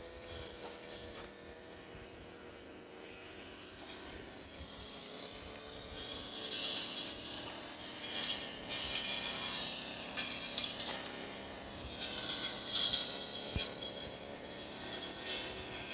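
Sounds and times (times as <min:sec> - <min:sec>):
brush cutter cutting grass: 0:00.0 - 0:15.9.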